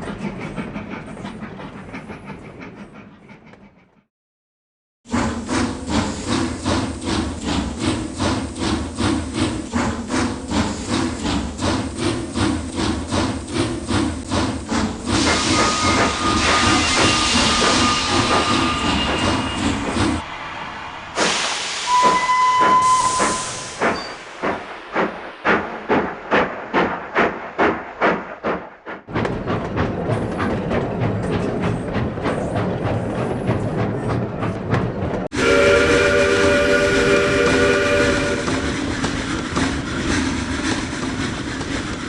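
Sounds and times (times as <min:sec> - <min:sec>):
model steam locomotive chuffing: 0:00.0 - 0:04.1, 0:21.2 - 0:42.0
steam hiss: 0:21.2 - 0:25.7
locomotive whistle: 0:21.8 - 0:24.1, 0:35.3 - 0:38.6.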